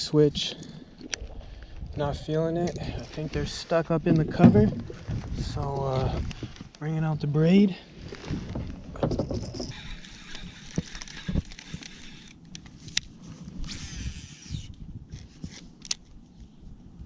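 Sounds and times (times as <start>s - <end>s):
fishing gear knocking and rustling: 2.6s - 6.8s, 8.0s - 14.2s.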